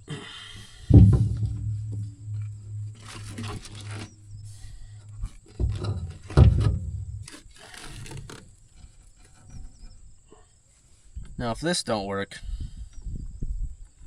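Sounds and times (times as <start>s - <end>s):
clunks and knocks on machinery: 0.6s - 9.9s
low hum: 0.8s - 7.4s.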